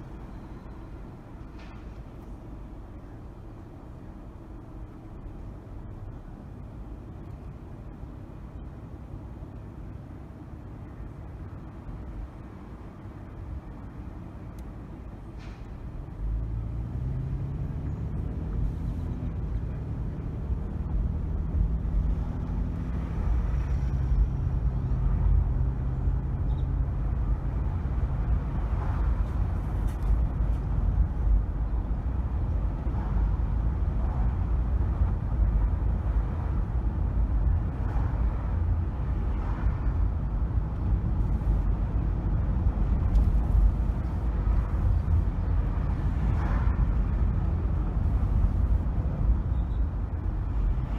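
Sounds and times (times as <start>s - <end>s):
road and tyre rumble: 0.0s - 50.9s
car engine accelerating: 16.0s - 30.2s.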